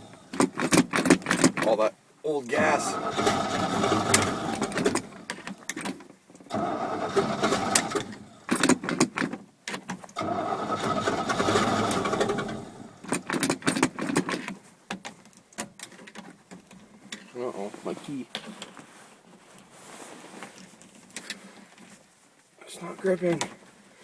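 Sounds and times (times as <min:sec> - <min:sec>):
car engine cranking: 0:00.0 - 0:01.8, 0:02.5 - 0:09.3, 0:10.2 - 0:14.3
starter clicks: 0:02.5 - 0:09.3.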